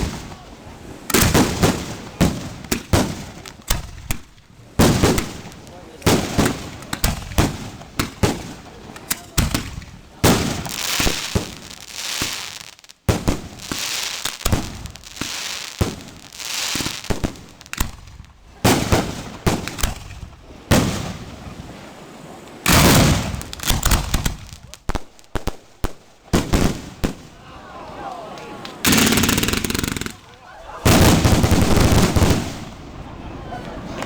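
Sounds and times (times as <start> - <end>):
fireworks banging: 0.0 - 21.3, 22.6 - 27.4, 28.6 - 32.9
fireworks hissing: 4.8 - 18.1, 28.8 - 30.3.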